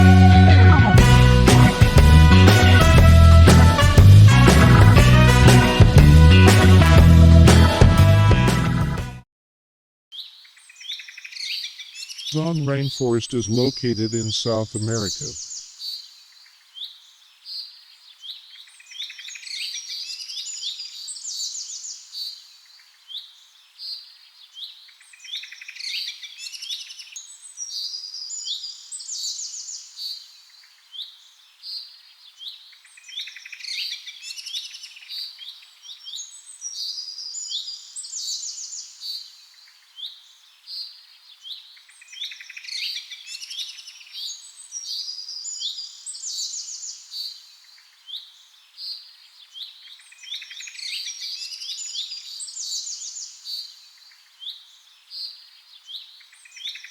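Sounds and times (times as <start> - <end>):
birds chirping and trilling: 36.2 - 56.9.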